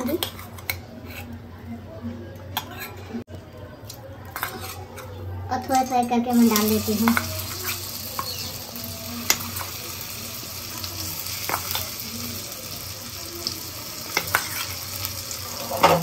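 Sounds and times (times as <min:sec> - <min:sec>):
food sizzling in oil: 0:05.6 - 0:16.0.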